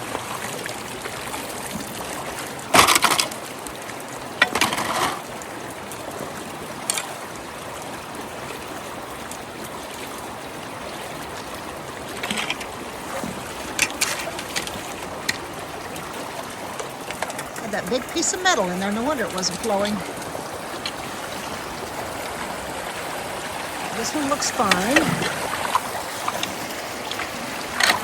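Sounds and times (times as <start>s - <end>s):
water running through culvert: 0.0s - 28.0s
water splashes: 0.0s - 28.0s.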